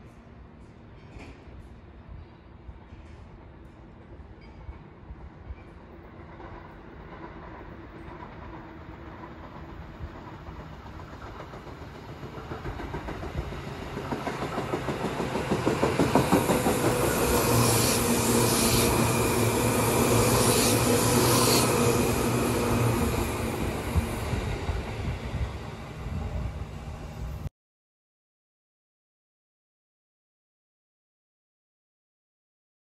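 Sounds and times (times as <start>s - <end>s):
electric train passing: 3.5s - 27.5s
wheels clacking over rail joints: 9.1s - 17.6s.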